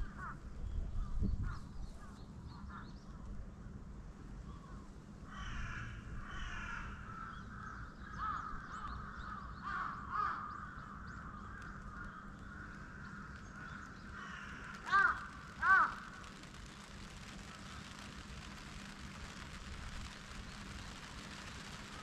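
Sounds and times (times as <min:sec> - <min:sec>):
birds harsh calls: 0:04.6 - 0:16.7
low steady rumble: 0:10.9 - 0:22.0.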